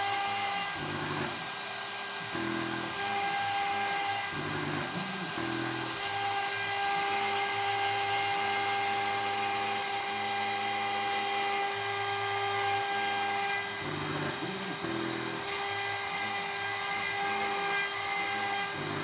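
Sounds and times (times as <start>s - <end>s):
spindle high whine: 0.0s - 17.6s
stepper motors humming: 0.7s - 9.7s, 11.8s - 17.4s.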